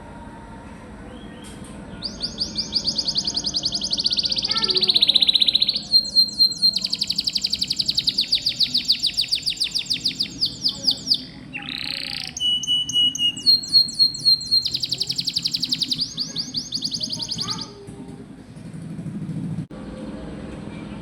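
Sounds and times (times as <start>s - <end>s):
canary singing trills: 1.1s - 17.8s.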